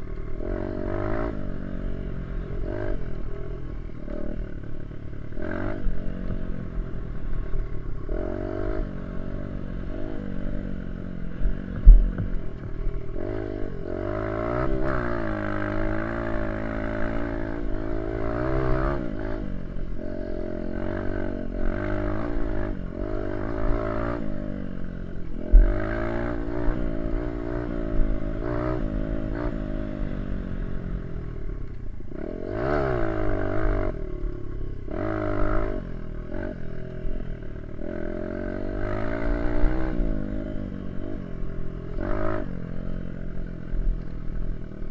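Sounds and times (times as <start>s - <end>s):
dirt bike engine revving: 0.0s - 30.8s, 31.6s - 44.9s
sharp thumps: 11.6s - 12.8s, 25.4s - 25.8s.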